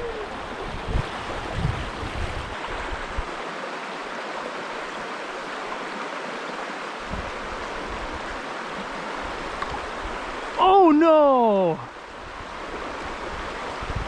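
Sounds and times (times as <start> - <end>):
wind rumble on microphone: 0.0 - 3.4, 7.1 - 8.4, 12.1 - 14.0
stream water flowing: 0.0 - 14.0.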